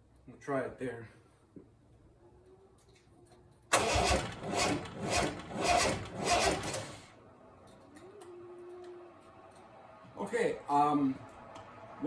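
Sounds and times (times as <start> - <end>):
starter motor cranking engine: 3.7 - 7.1.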